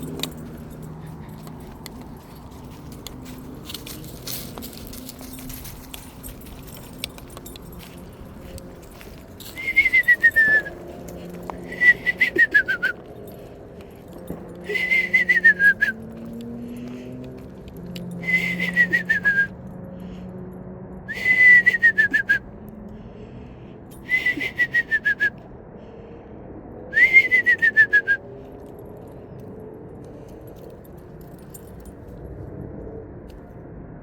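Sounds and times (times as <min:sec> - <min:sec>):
person whistling owl calls: 0:09.5 - 0:10.8, 0:11.6 - 0:13.0, 0:14.7 - 0:16.0, 0:18.2 - 0:19.5, 0:21.1 - 0:22.4, 0:24.0 - 0:25.4, 0:27.0 - 0:28.2.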